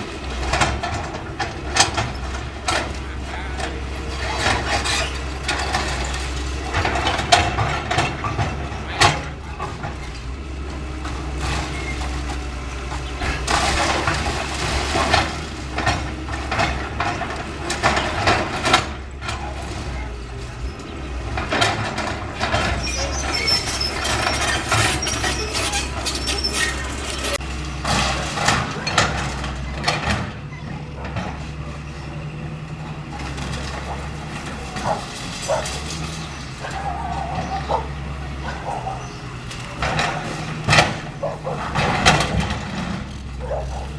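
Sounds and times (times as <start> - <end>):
excavator diesel engine running: 0.0 - 43.9
concrete crashing and crunching: 13.0 - 20.1.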